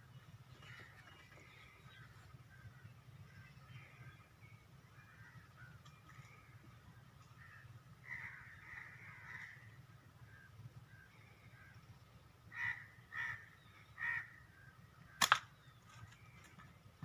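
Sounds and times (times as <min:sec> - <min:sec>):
crows cawing: 0:04.9 - 0:10.5, 0:11.6 - 0:15.3
sharp crack: 0:15.2 - 0:15.6.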